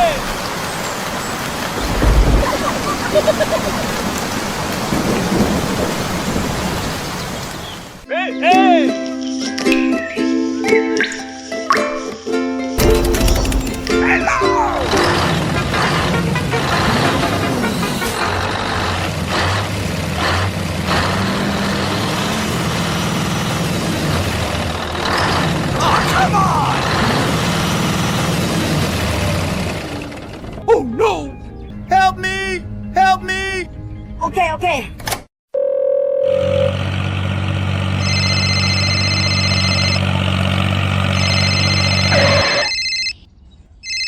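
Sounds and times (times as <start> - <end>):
tractor engine idling: 27.4 - 30.7.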